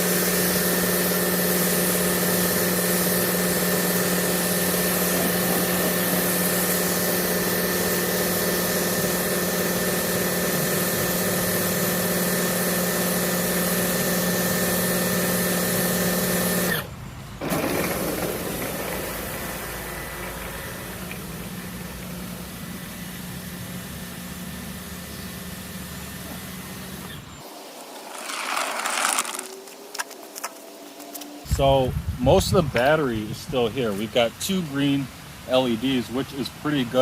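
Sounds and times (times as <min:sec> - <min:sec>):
pressure washer pump humming: 0:00.0 - 0:27.4, 0:31.4 - 0:37.0
faint hiss: 0:31.4 - 0:37.0.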